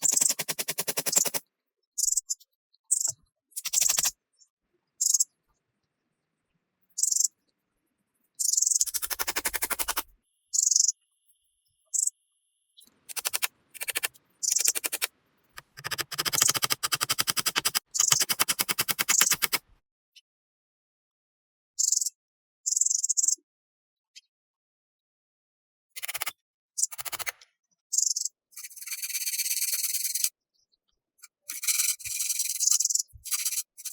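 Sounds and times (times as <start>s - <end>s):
rapid ratcheting rasps: 0.0s - 1.4s, 8.7s - 10.0s, 13.1s - 19.6s.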